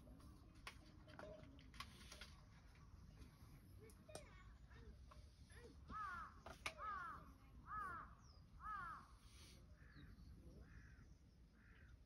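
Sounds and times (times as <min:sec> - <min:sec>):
crow cawing: 0:05.9 - 0:09.2, 0:09.8 - 0:11.9.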